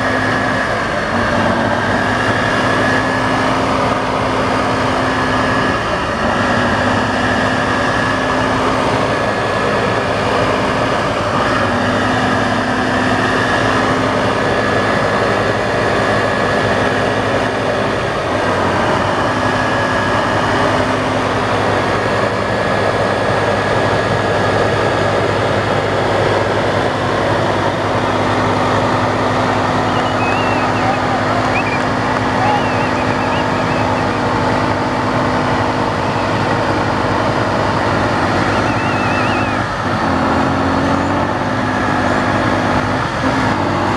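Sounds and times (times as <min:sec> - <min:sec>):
truck engine running: 0:00.0 - 0:43.9
high whine: 0:27.9 - 0:43.9.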